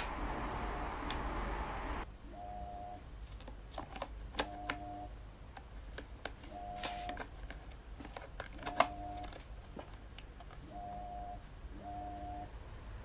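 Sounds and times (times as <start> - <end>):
plastic parts clicking and knocking: 7.1 - 10.6.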